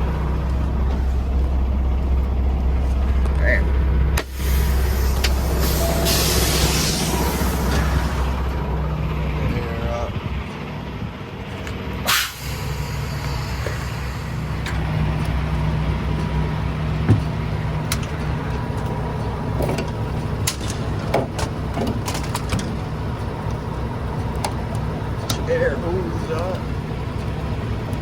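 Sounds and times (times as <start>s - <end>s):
diesel truck engine idling: 0.0s - 28.0s
loud air hiss: 4.2s - 8.5s, 12.1s - 14.6s
sharp clicks and knocks: 17.0s - 19.0s, 19.6s - 23.6s, 24.2s - 25.5s.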